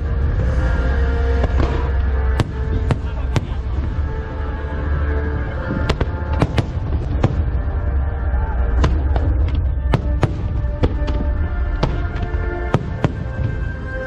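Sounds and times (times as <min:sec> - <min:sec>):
music playing: 0:00.0 - 0:14.0
deep rumble of booms: 0:05.4 - 0:14.0.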